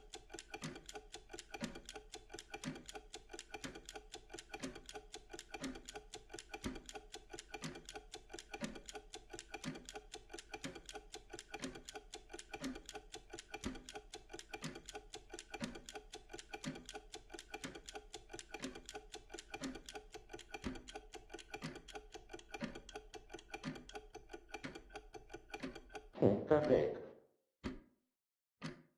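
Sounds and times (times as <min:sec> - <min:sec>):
clock ticking: 0:00.0 - 0:27.8, 0:28.6 - 0:28.8.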